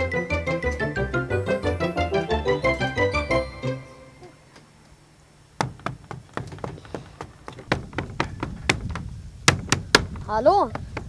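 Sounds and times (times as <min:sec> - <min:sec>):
knocking on wooden door: 0:05.6 - 0:11.0.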